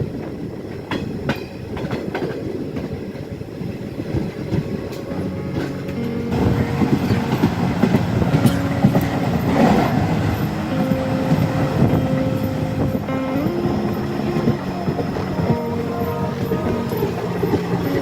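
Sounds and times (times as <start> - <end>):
train rumbling: 0.0 - 18.0
wheels clattering over rails: 0.2 - 18.0
held tones shifting in pitch: 5.1 - 18.0.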